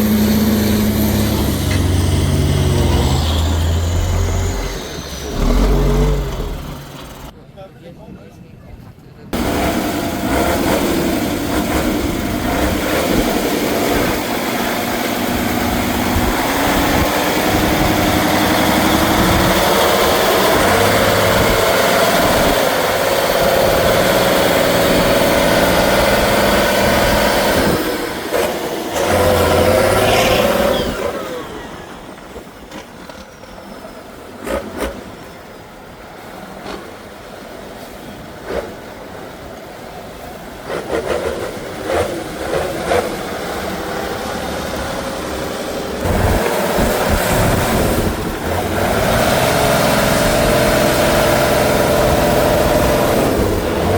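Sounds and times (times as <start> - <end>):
truck engine under load: 0.0 - 7.4, 9.4 - 53.9.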